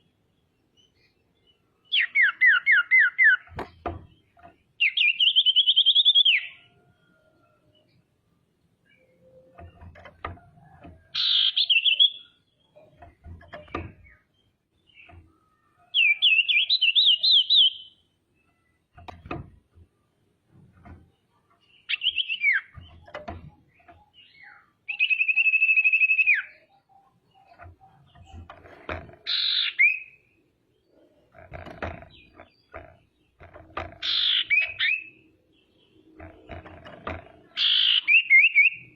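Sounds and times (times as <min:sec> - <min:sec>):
faint short knocks: 0:18.6 - 0:21.7, 0:22.7 - 0:24.2
bird whistled trills: 0:24.4 - 0:26.6.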